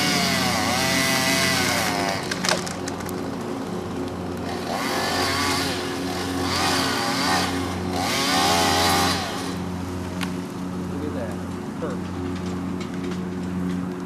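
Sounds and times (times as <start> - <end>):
chainsaw cutting through tree: 0.0 - 10.4.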